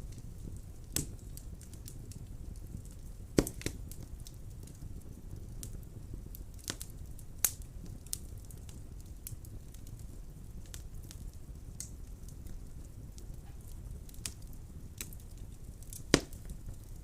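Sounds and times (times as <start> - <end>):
burning wood crackling: 0.0 - 17.0
fire flames rumbling: 0.0 - 17.0.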